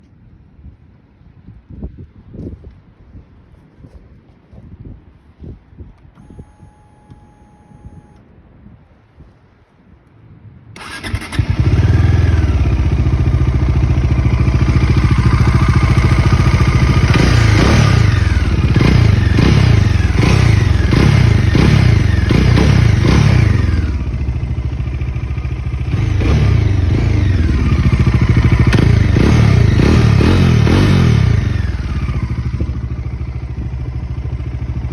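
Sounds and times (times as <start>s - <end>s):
engine revving with throttle blips: 10.8s - 24.2s, 25.8s - 32.6s
motorcycle engine idling: 10.8s - 34.9s
motorcycle engine starting: 10.8s - 34.9s.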